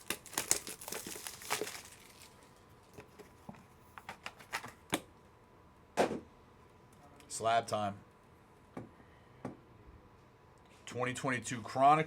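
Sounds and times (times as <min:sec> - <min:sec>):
cards and plastic cases clicking: 0:00.0 - 0:02.1, 0:04.0 - 0:05.0
plastic packaging crinkling and tearing: 0:00.0 - 0:03.1.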